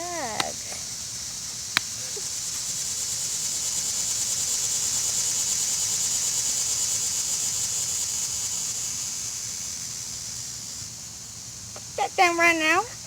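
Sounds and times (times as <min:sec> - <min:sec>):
insects chirping in chorus: 0:00.0 - 0:13.0.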